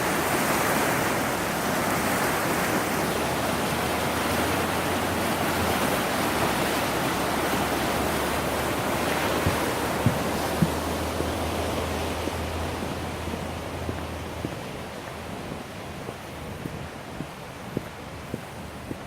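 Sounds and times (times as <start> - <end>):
river rushing over rapids: 0.0 - 19.0
soft thumps: 9.3 - 15.2.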